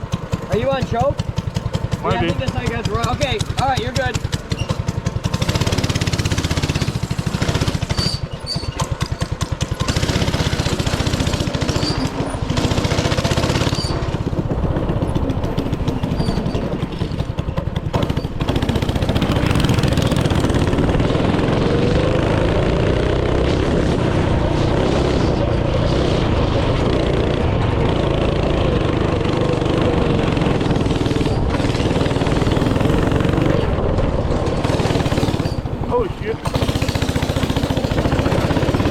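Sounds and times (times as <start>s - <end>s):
small engine rattling: 0.0s - 38.9s.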